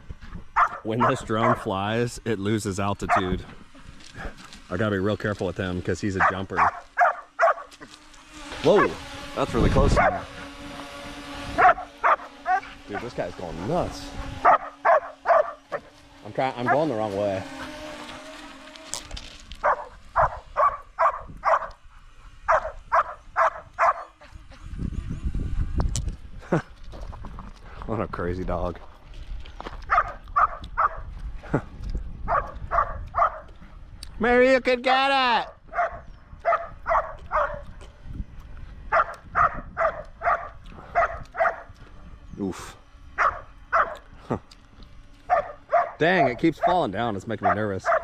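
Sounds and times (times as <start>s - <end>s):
dog barking excitedly: 0.6s - 1.7s, 3.0s - 3.4s, 6.2s - 7.8s, 9.9s - 10.4s, 11.6s - 13.2s, 14.3s - 16.0s, 16.6s - 17.0s, 19.6s - 21.8s, 22.5s - 24.2s, 29.9s - 31.1s, 32.3s - 33.5s, 35.7s - 37.7s, 38.9s - 41.7s, 43.2s - 44.0s, 45.3s - 46.8s, 47.4s - 48.0s.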